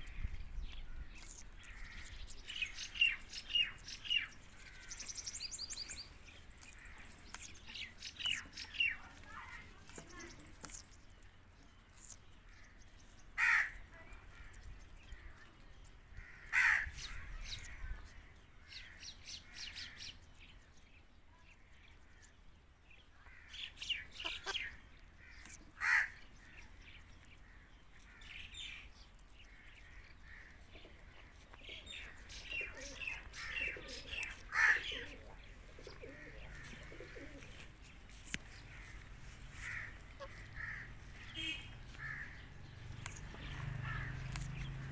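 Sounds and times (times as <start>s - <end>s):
parakeet chirps and chatter: 0.1s - 11.2s, 23.8s - 27.4s, 29.4s - 44.9s.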